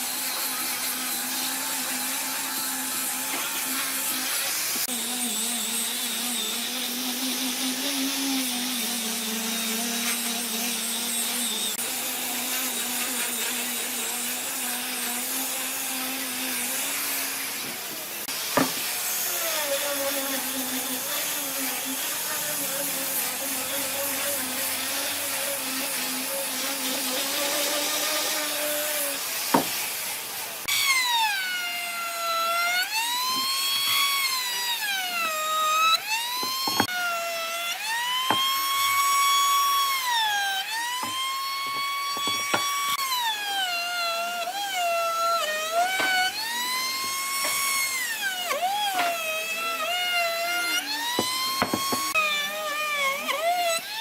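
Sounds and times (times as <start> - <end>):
power tool motor humming: 0.0 - 54.0.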